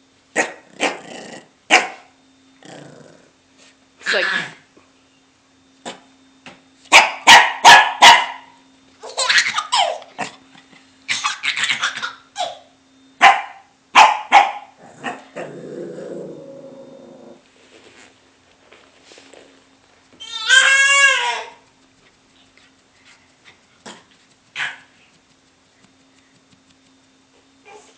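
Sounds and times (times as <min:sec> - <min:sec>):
puppy barking: 0:00.4 - 0:01.0, 0:01.7 - 0:02.1, 0:06.9 - 0:08.6, 0:13.2 - 0:15.3, 0:24.6 - 0:24.9.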